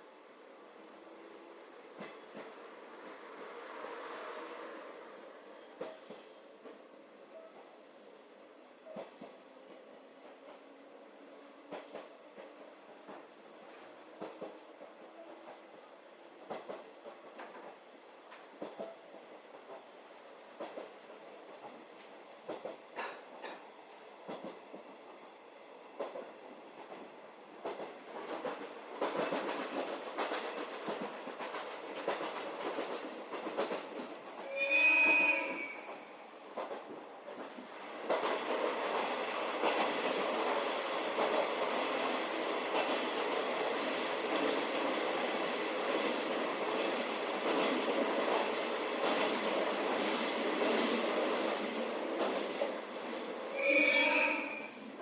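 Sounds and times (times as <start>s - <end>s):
train wheels rolling on rails: 0.0s - 55.0s
train horn: 34.4s - 36.0s, 53.5s - 54.8s.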